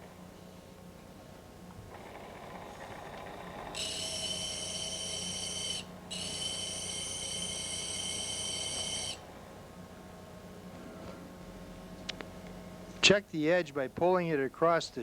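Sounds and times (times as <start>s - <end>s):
metal squealing on spinning disc: 3.8s - 9.2s.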